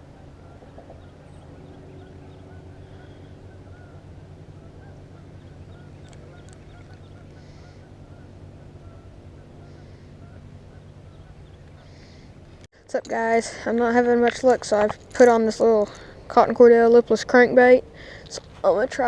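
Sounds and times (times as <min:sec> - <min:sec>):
birds calling: 0:00.0 - 0:12.7
steady low hum: 0:00.0 - 0:19.0.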